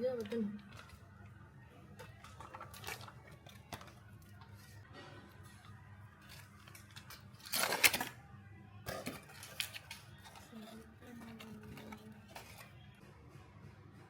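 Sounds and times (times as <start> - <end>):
low steady background noise: 0.0 - 14.0
loud rustle or tearing: 6.2 - 8.2.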